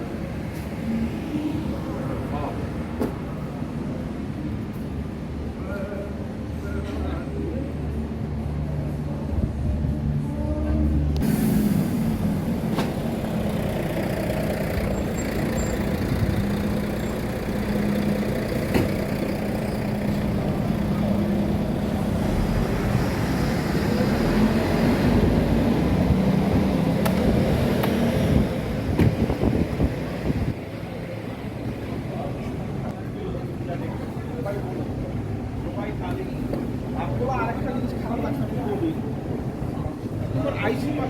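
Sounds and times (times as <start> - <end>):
heavy vehicle engine rumbling: 0.0 - 41.0
street traffic: 0.0 - 41.0.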